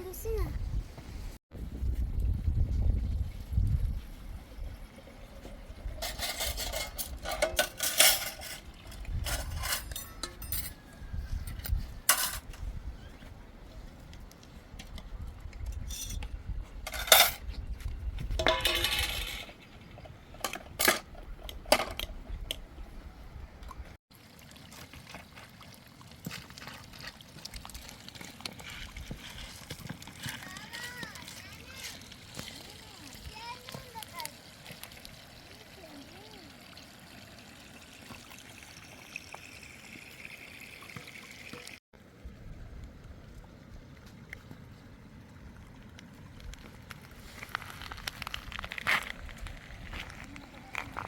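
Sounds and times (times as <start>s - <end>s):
wind rumble on microphone: 0.0s - 7.5s, 8.6s - 24.0s.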